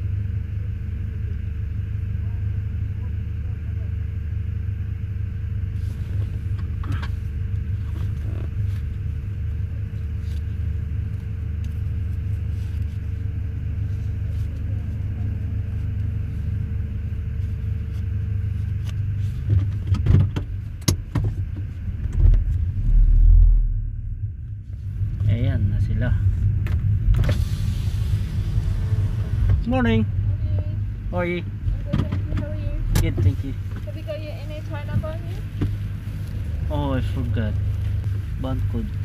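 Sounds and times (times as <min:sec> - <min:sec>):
car engine idling: 0:00.0 - 0:39.0
heavy low thump: 0:19.9 - 0:33.8.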